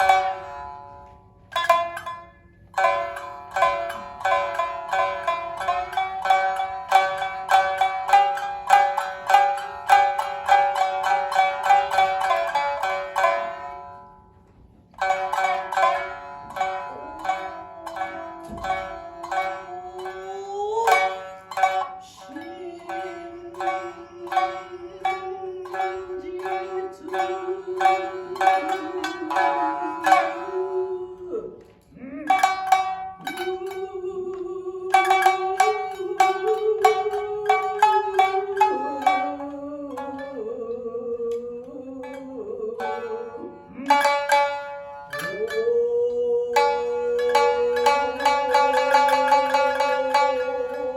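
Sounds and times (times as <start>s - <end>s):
shamisen plucked notes: 0.0s - 50.9s.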